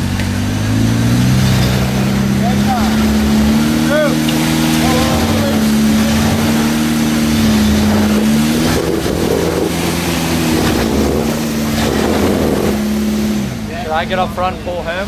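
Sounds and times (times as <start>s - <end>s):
off-road vehicle engine under load: 0.0s - 15.0s.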